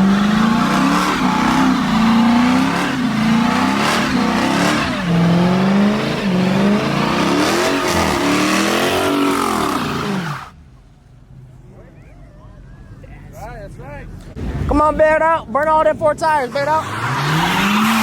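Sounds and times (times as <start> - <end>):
car engine revving hard: 0.0 - 10.5, 16.8 - 18.0.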